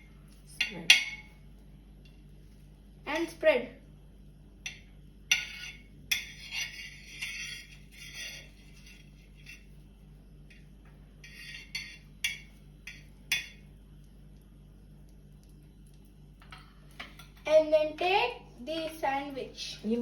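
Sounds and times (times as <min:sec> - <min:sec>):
utensil scraping a pan: 0:05.3 - 0:09.8, 0:11.2 - 0:13.5.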